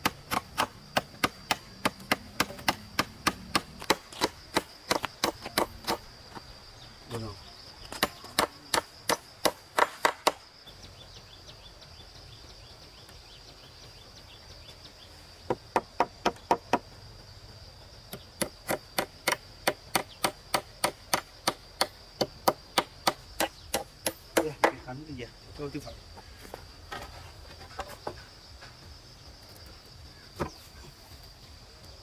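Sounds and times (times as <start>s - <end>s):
wood being chopped: 0.0s - 6.5s, 7.8s - 10.5s, 18.1s - 24.9s.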